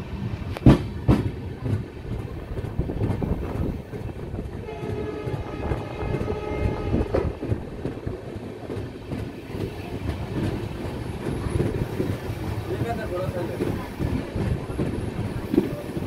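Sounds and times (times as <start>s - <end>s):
passenger train running on rails: 0.0s - 16.0s
train horn: 4.5s - 7.4s.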